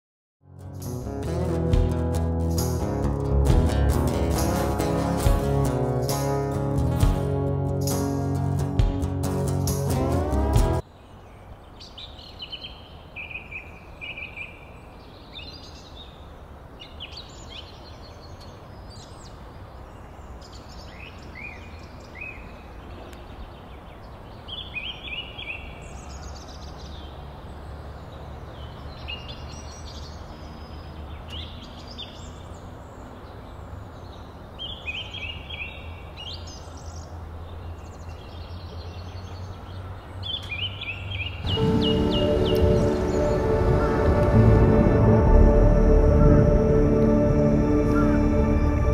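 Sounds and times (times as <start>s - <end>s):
birds chirping: 9.2s - 48.9s
low outdoor background noise: 10.8s - 48.9s.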